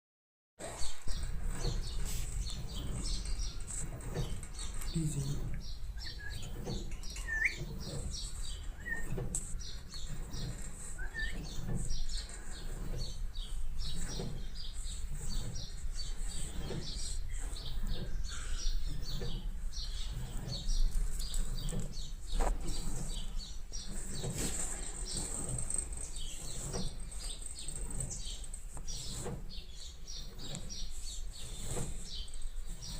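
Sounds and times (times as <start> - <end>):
cockatiel chirping: 7.2 - 7.6.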